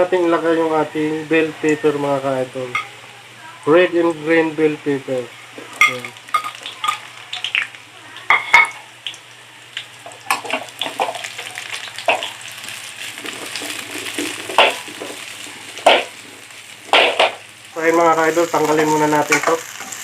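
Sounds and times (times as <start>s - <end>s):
vegetables sizzling in hot oil: 0.0s - 20.0s
utensil knocking against pan: 14.6s - 14.9s, 15.8s - 16.1s, 16.9s - 17.4s.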